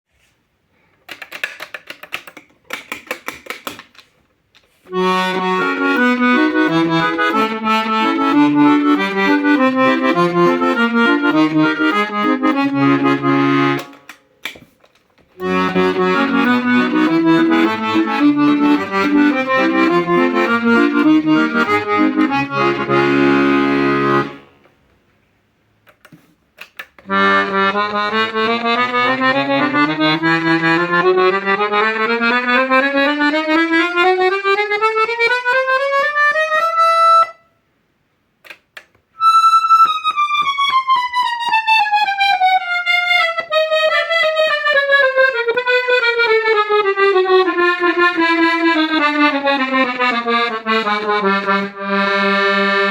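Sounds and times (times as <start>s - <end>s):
accordion playing: 4.9s - 14.2s, 15.4s - 24.7s, 27.1s - 37.5s, 39.2s - 52.9s.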